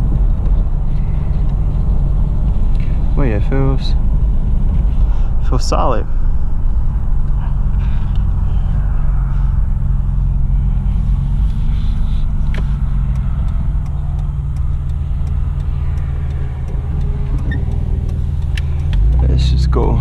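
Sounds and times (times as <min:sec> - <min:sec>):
car road and engine rumble: 0:00.0 - 0:20.0
faint ticking: 0:06.6 - 0:20.0.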